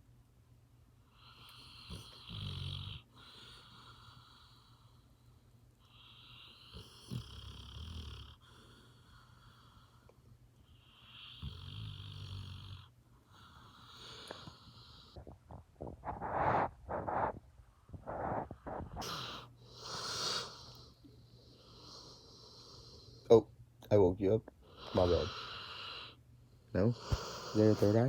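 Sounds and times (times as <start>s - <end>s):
dog snoring: 1.1s - 5.0s, 5.8s - 10.1s, 10.7s - 23.3s, 24.6s - 26.2s, 26.8s - 28.0s
dog snorting: 11.3s - 20.8s, 24.7s - 26.2s, 26.8s - 28.0s.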